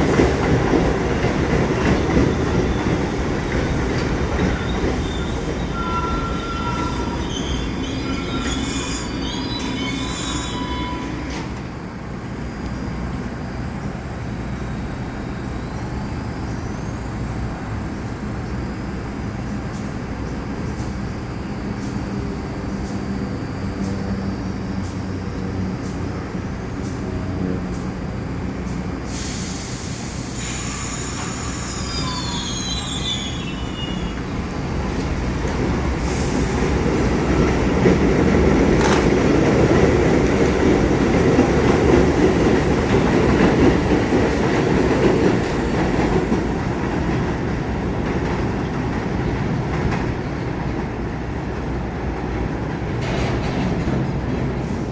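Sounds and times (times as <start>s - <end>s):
subway train rumble: 0.0s - 54.9s
high wheel squeals: 4.4s - 11.6s, 29.2s - 34.5s.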